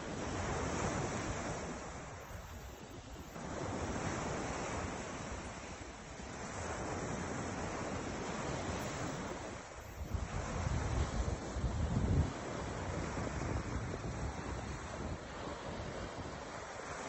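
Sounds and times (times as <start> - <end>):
ocean waves washing on shore: 0.0 - 17.0
wind buffeting microphone: 0.0 - 17.0.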